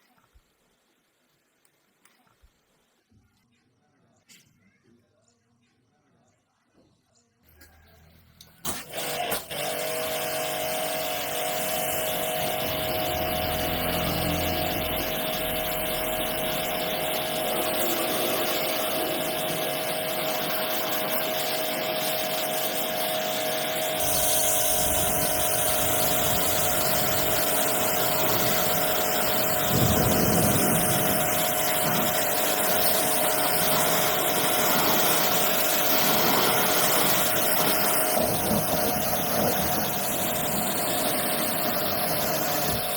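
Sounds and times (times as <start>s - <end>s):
machine whining and rushing: 8.7s - 42.9s.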